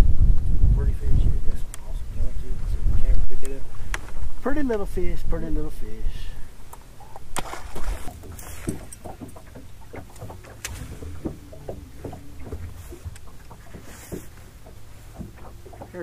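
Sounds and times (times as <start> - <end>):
wind rumbling on microphone: 0.0 - 16.0
small waves slapping a boat hull: 6.5 - 16.0.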